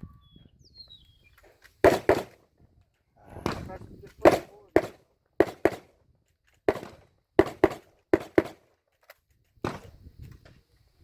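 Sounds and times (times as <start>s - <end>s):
rapid gunshots: 1.8s - 2.4s, 3.4s - 5.9s, 6.7s - 8.6s.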